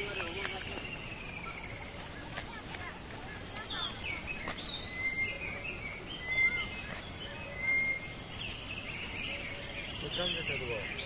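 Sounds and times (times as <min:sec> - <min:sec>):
outdoor background hiss: 0:00.0 - 0:11.0
small birds chirping and whistling: 0:00.0 - 0:11.0.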